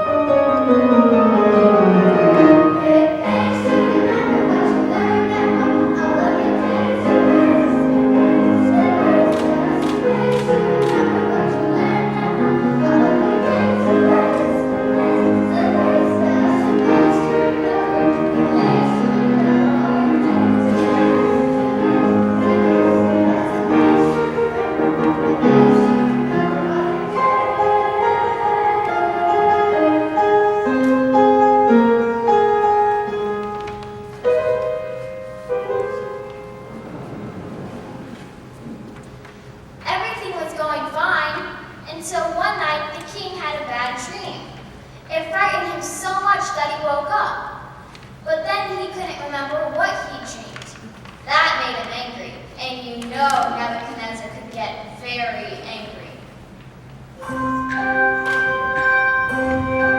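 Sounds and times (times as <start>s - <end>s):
children's choir singing: 0.0s - 39.0s, 57.2s - 59.9s
piano accompaniment: 0.0s - 40.6s, 56.4s - 59.9s.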